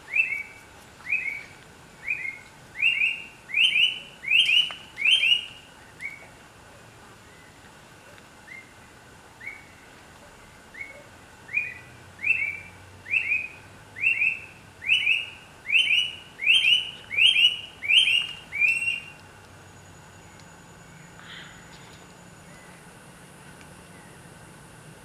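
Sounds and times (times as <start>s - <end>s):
bird singing whistled notes: 0.0s - 6.3s, 8.4s - 8.8s, 9.4s - 9.9s, 10.7s - 19.2s.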